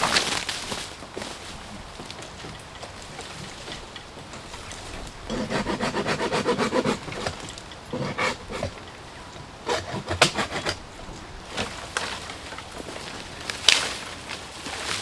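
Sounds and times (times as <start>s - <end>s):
wood cracking: 0.0s - 15.0s
wood scraping by hand: 4.6s - 12.3s.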